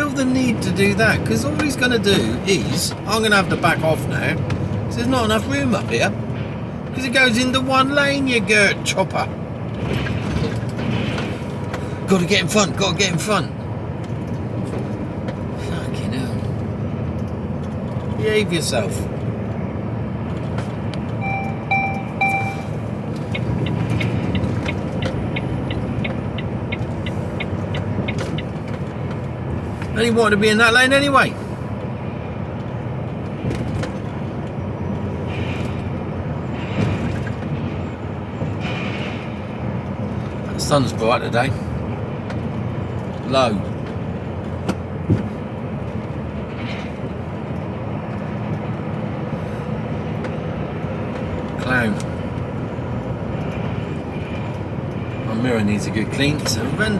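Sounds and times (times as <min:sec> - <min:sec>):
truck engine and road rumble: 0:00.0 - 0:56.9
turn indicator ticking: 0:20.3 - 0:30.0
short electronic beeps: 0:21.2 - 0:27.6.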